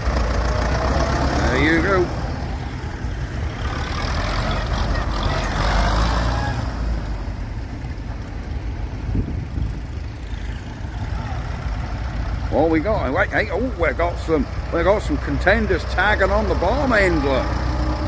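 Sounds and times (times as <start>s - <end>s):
tractor engines rumbling: 0.0s - 18.0s.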